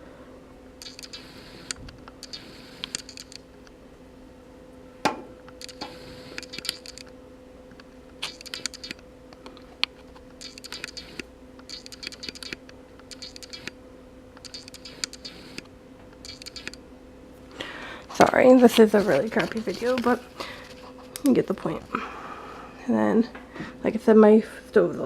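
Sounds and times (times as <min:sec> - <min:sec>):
steady low hum: 0:00.0 - 0:25.0
faint clicking and scratching: 0:18.6 - 0:21.4.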